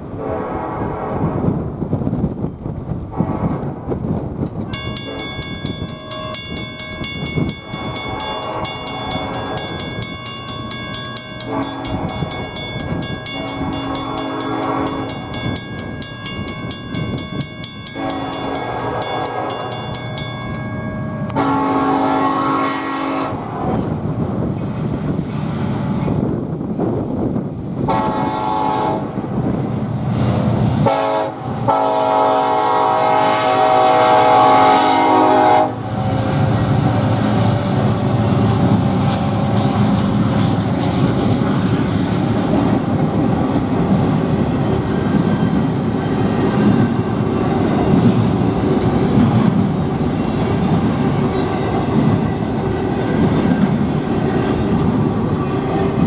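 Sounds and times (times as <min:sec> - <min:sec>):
train rumbling past: 0:00.0 - 0:56.0
train horn blasts: 0:00.1 - 0:01.6, 0:04.8 - 0:16.1, 0:17.9 - 0:20.2, 0:21.0 - 0:23.9, 0:27.9 - 0:29.2, 0:30.8 - 0:36.7
wheels clacking over rail joints: 0:03.9 - 0:21.6, 0:35.8 - 0:56.0.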